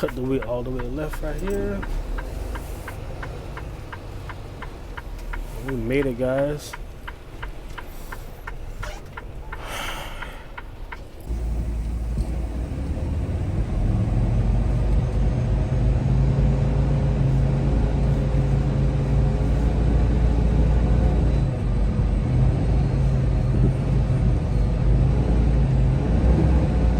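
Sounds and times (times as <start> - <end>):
light ticks: 0.0 - 13.0
road noise: 0.0 - 26.9
truck diesel engine drone: 0.0 - 26.9.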